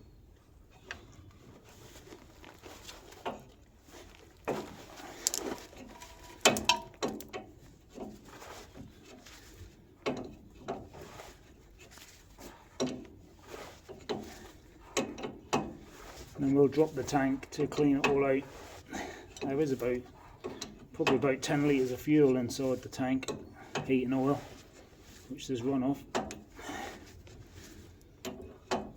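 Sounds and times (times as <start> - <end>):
hand tools clinking on metal: 5.1 - 7.4.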